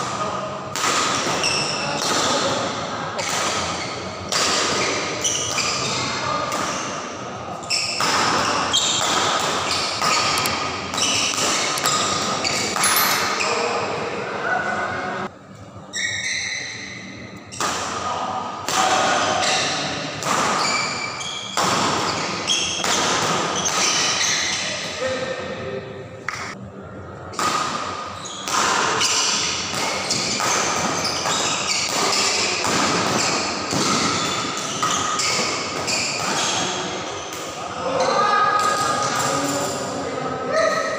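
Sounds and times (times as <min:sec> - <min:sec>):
racket striking shuttlecock: 0:08.0 - 0:13.4.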